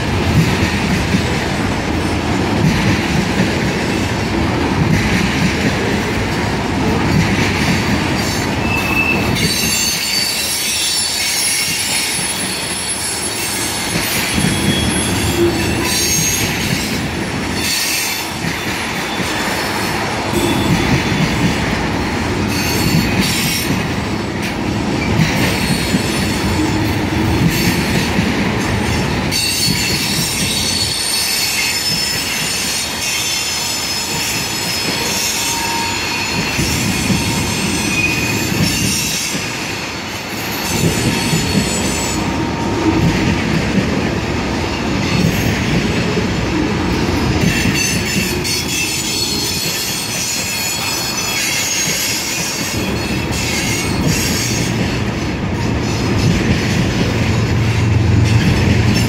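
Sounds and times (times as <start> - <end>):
train wheels rumbling on rails: 0.0 - 59.0
high wheel squeal: 8.2 - 16.5, 29.3 - 39.3.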